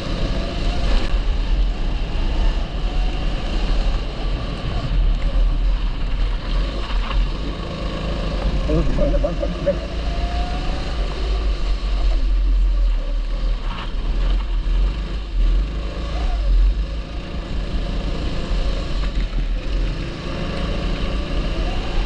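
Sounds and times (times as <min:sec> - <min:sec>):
kart engine running: 0:00.0 - 0:22.0
heavy low rumble: 0:00.8 - 0:13.4.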